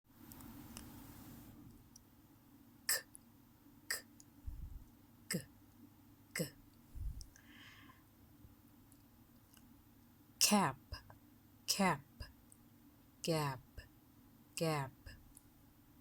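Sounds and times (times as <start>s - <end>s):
woman sounding consonants: 3.9s - 5.5s, 6.4s - 7.2s
dull low thumps: 4.4s - 4.9s.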